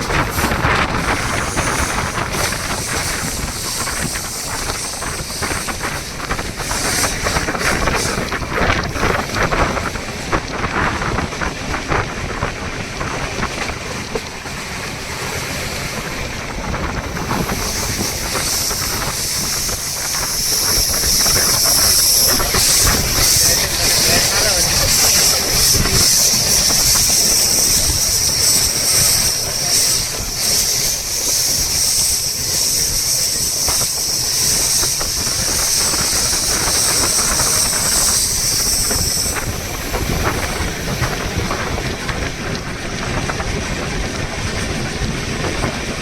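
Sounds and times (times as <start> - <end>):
wheel and rail noise: 0.0 - 46.0
wind buffeting microphone: 0.0 - 46.0.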